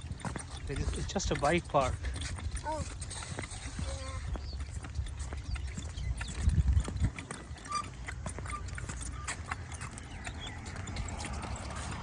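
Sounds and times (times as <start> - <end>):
bicycle rattling on rough path: 0.0 - 12.0
wind on microphone: 1.9 - 7.9.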